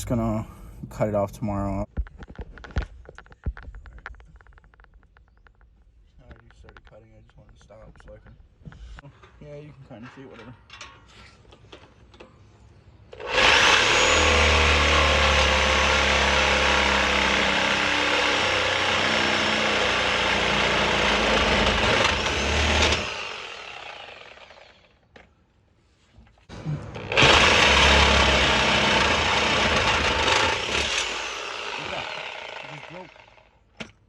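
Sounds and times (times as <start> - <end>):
reciprocating saw cutting metal pipe: 13.2 - 24.8, 26.8 - 33.5.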